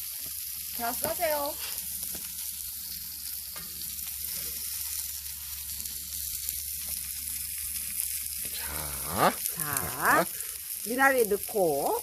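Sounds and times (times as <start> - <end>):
meat sizzling on a grill: 0.0 - 12.0
fat spitting crackles: 8.4 - 10.5.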